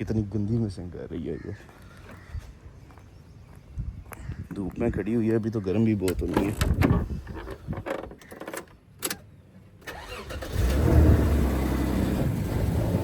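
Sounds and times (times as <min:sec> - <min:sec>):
car engine cranking and idling: 0:09.8 - 0:13.0.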